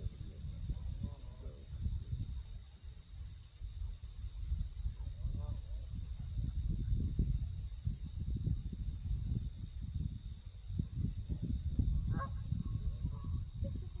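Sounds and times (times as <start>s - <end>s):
insect drone: 0.0s - 14.0s
wind rumble on microphone: 0.0s - 14.0s.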